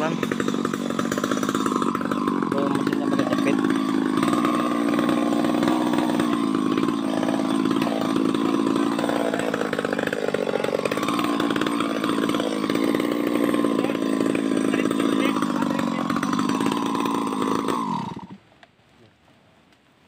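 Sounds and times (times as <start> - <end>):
chainsaw cutting at full throttle: 0.0 - 18.4.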